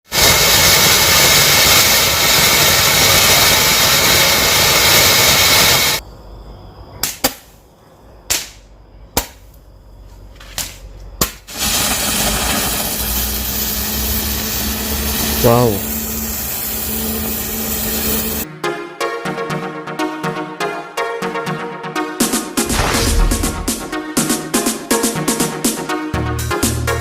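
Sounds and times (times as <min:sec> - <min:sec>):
fireworks hissing spray: 0:00.0 - 0:06.0, 0:11.5 - 0:18.4
fireworks sharp pops: 0:00.1 - 0:06.0, 0:07.0 - 0:07.6, 0:08.3 - 0:09.6, 0:10.4 - 0:15.3.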